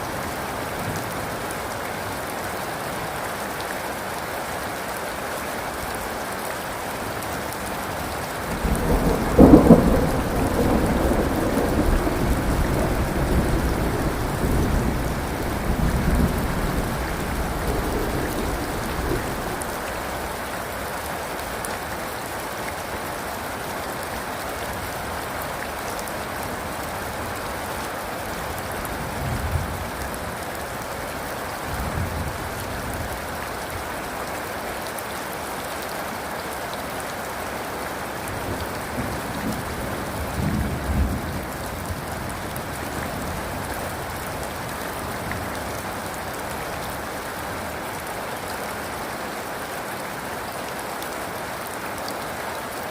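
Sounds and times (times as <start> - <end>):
heavy rain hissing: 5.2 - 34.6
faint distant thunder rumbles: 8.5 - 19.8, 28.7 - 30.5
thunderclap rumbling: 8.6 - 19.8, 28.9 - 30.4.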